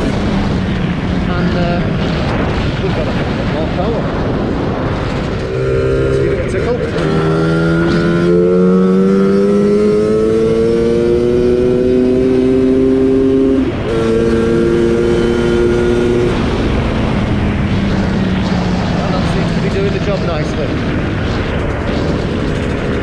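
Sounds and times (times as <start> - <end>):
wind on microphone: 0.0 - 23.0
two-stroke scooter engine revving: 5.4 - 16.5.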